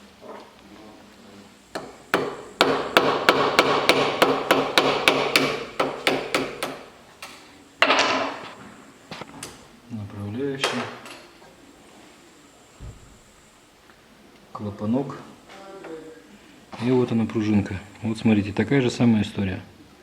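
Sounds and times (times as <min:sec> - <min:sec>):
hammer tapping on metal: 0:01.7 - 0:06.8.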